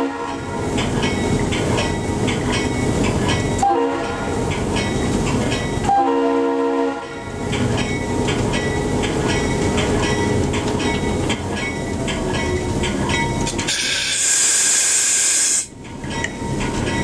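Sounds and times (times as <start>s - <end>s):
train horn chord: 0.0s - 0.6s, 3.6s - 4.4s, 5.9s - 7.4s
train rolling on rails: 0.0s - 17.0s
wheels clicking over rail joints: 7.3s - 14.2s, 15.7s - 17.0s
loud hiss: 13.7s - 15.7s.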